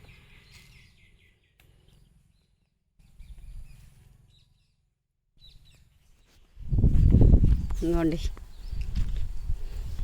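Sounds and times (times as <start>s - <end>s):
faint bird chirps: 0.0s - 6.5s.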